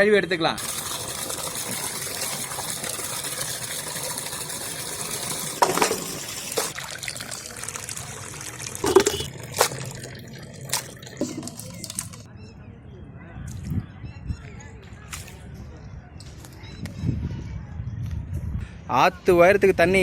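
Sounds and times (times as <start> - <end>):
meat splashing in a pot: 0.6 - 12.3
water running: 0.6 - 12.3.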